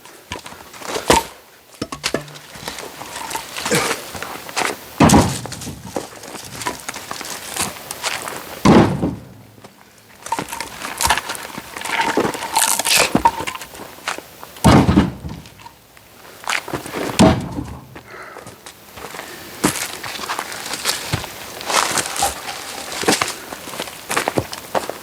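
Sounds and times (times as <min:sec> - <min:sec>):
heavy wooden thunks: 0:01.8 - 0:02.8, 0:05.0 - 0:06.0, 0:08.6 - 0:09.6, 0:14.6 - 0:15.6, 0:17.2 - 0:18.0.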